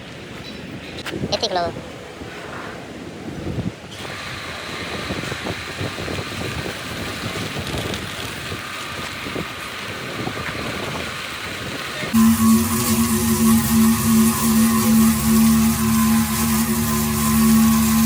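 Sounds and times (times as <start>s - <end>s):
loud steady pitched hum: 12.2s - 18.0s
machine running with faint whine: 12.2s - 18.0s.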